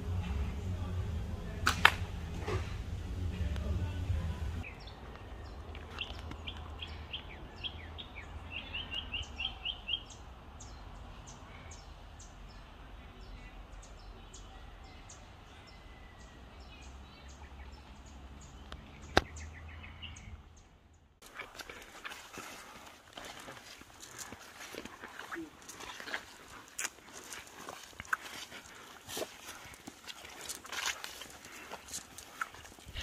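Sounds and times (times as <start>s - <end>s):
low rumble: 0.0s - 5.7s
wild birds chirping: 0.0s - 33.0s
sharp click: 1.6s - 2.1s.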